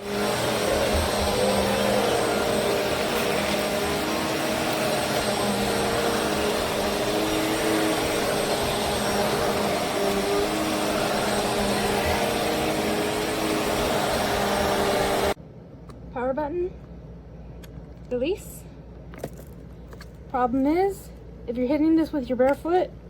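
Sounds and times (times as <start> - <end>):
vacuum cleaner running: 0.0 - 15.4.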